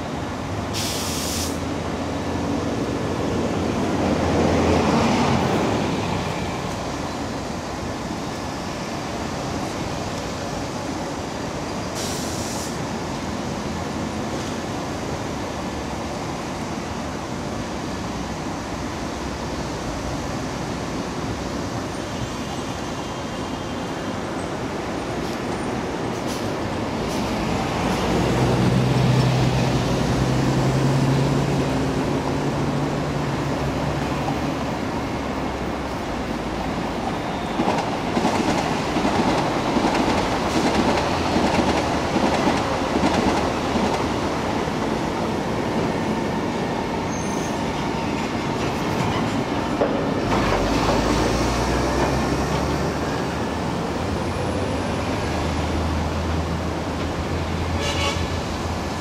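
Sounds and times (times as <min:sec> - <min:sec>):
train running noise: 0:00.0 - 0:59.0
short hisses: 0:00.8 - 0:01.7, 0:12.0 - 0:12.8.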